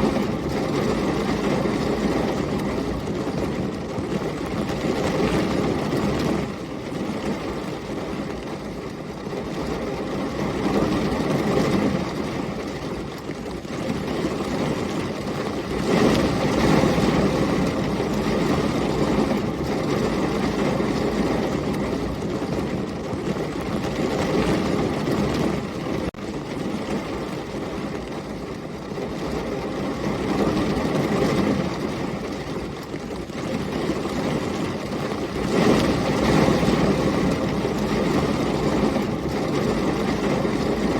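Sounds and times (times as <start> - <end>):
heavy rain: 0.0 - 40.9
storm wind gusts: 0.0 - 40.9.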